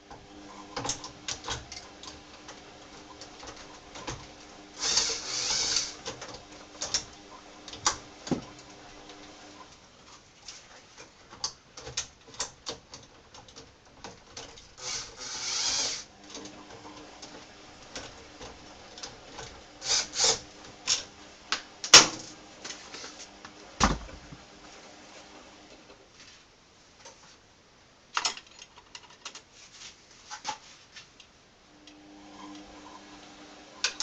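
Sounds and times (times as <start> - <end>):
tools and metal parts clicking: 28.2 - 29.5.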